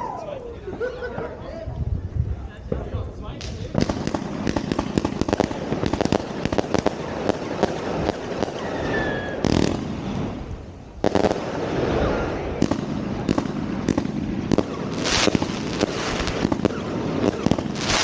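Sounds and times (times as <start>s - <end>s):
fireworks bangs and crackling: 2.6s - 18.0s
falling firework whistle: 8.4s - 9.6s.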